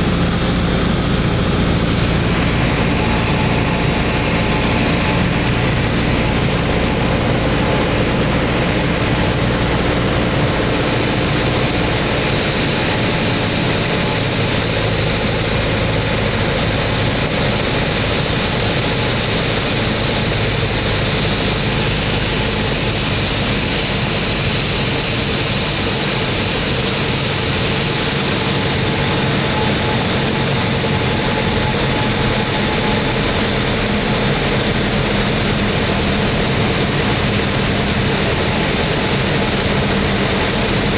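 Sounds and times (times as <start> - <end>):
propeller aircraft engine drone: 0.0 - 40.9.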